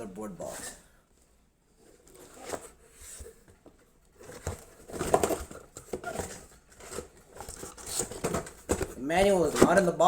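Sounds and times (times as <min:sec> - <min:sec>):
cardboard box rustling and crinkling: 0:04.2 - 0:10.0.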